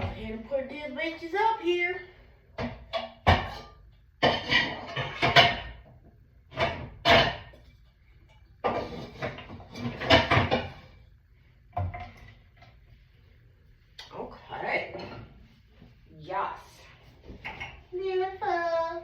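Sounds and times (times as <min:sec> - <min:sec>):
dishes clinking and clattering: 0:02.6 - 0:11.0, 0:11.8 - 0:12.7, 0:14.9 - 0:15.4, 0:17.4 - 0:17.9.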